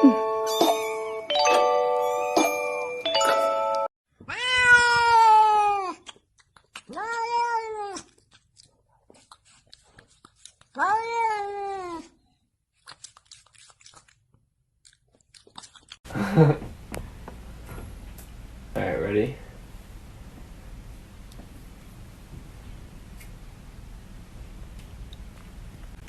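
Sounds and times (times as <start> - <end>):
cat meowing: 4.2 - 6.0, 6.9 - 8.2, 10.7 - 12.2.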